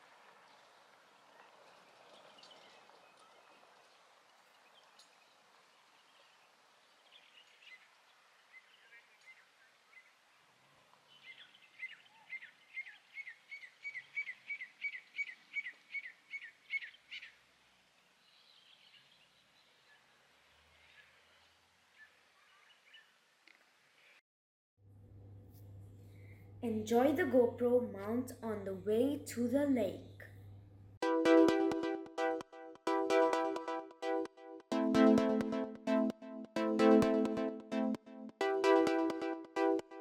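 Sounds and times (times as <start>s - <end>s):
bird singing: 11.1s - 17.4s.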